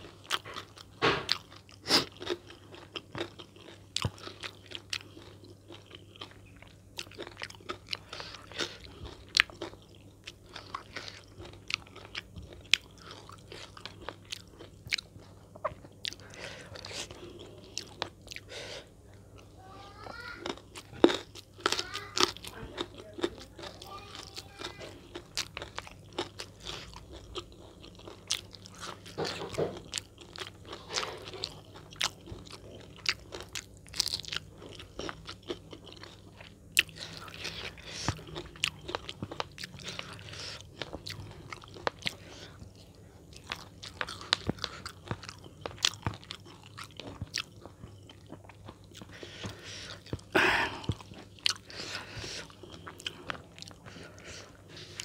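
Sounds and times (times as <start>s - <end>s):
person crunching and chewing food: 0.0s - 55.0s.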